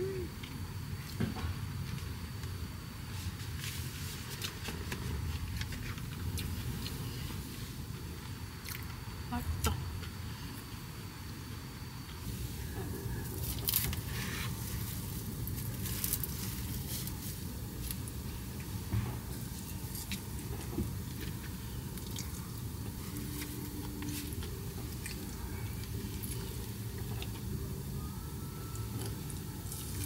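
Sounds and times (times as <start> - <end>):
steady low hum: 0.0 - 30.0
person chewing: 8.6 - 8.9, 22.0 - 22.5, 23.2 - 27.5.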